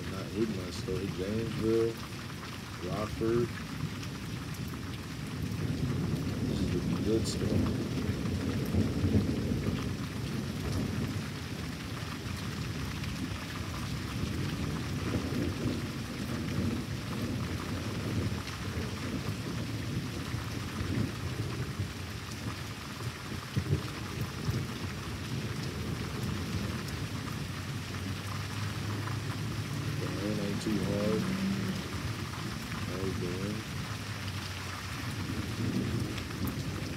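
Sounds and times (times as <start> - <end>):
steady rain falling: 0.0 - 36.9
deep rolling thunder: 4.6 - 13.4, 14.0 - 22.6, 23.3 - 27.6, 35.1 - 36.9.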